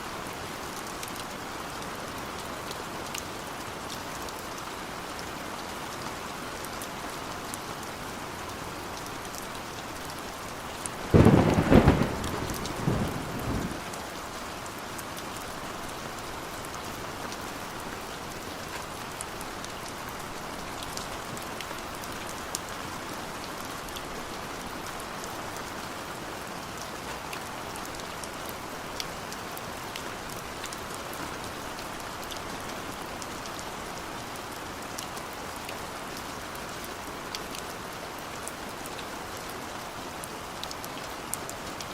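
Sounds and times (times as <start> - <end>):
heavy rain: 0.0 - 41.9
thunderclap rumbling: 11.1 - 13.9.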